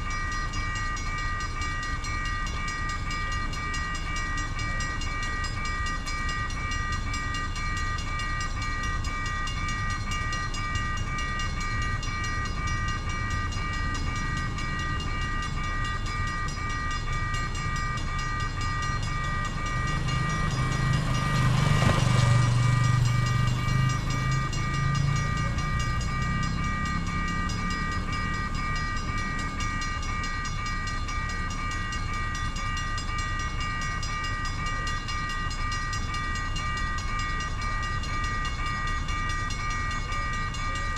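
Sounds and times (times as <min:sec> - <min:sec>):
level crossing bell ringing: 0:00.0 - 0:40.9
low rumble of passing vehicle: 0:09.1 - 0:31.4.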